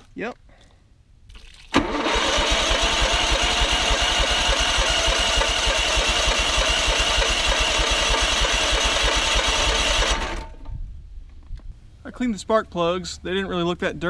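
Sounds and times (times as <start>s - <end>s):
electric starter cranking engine: 1.7s - 10.7s.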